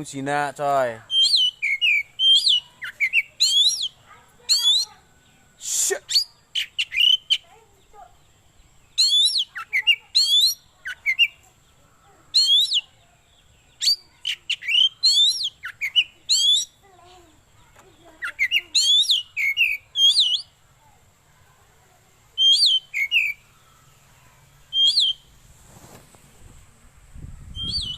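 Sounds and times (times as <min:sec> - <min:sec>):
bird singing whistled notes: 0:01.1 - 0:05.5, 0:06.1 - 0:07.4, 0:08.6 - 0:11.4, 0:12.3 - 0:16.8, 0:18.2 - 0:20.6, 0:22.4 - 0:24.0, 0:24.6 - 0:25.3, 0:27.3 - 0:27.9
low rustle: 0:25.3 - 0:27.6.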